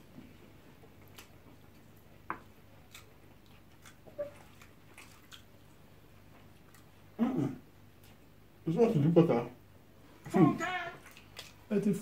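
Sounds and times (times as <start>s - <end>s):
faint chewing with smacks: 0.1s - 7.2s, 7.8s - 8.4s, 11.0s - 11.7s.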